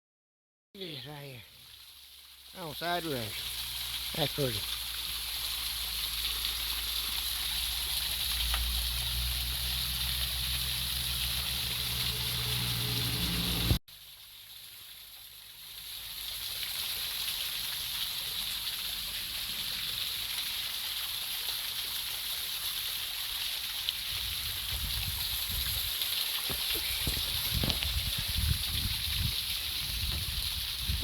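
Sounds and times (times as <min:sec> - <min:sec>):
rushing water: 0:00.8 - 0:31.0
vehicle engine running: 0:09.5 - 0:13.8.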